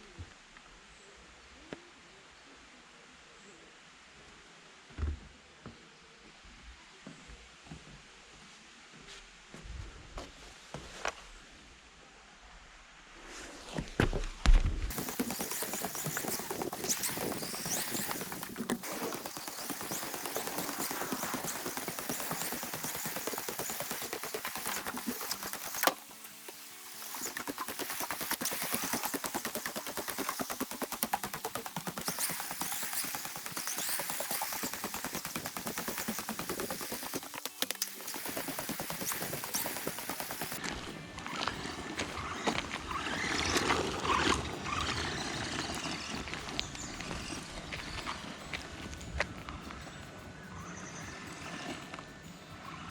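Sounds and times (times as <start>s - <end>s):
remote control car crackle: 14.9s - 48.2s.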